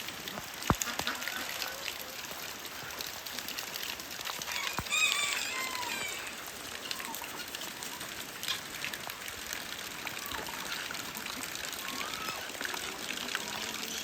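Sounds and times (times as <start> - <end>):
running water: 0.0 - 14.0
steady rain: 0.0 - 14.0
high animal calls: 4.5 - 8.0.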